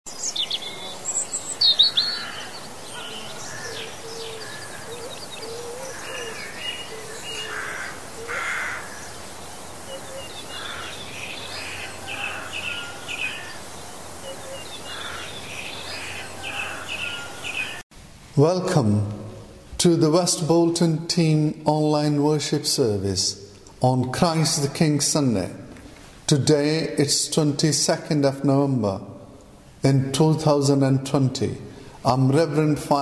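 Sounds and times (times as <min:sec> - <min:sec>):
birds chirping and singing: 0:00.1 - 0:17.8
faint hiss: 0:00.1 - 0:33.0.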